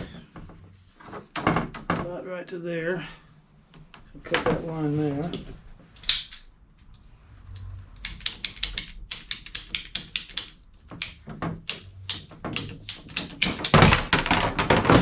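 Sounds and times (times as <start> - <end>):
pipe cutter clicking: 7.5 - 14.0.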